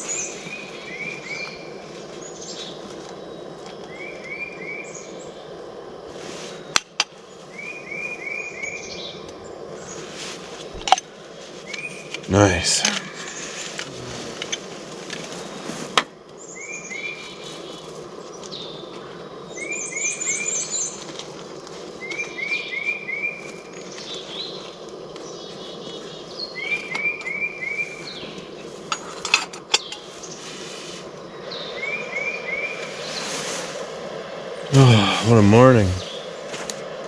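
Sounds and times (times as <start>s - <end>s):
birds singing: 0.0s - 2.8s, 3.8s - 5.6s, 7.2s - 10.2s, 16.4s - 18.9s, 19.5s - 21.0s, 22.0s - 29.1s, 29.7s - 30.4s
steady background hiss: 0.0s - 37.0s.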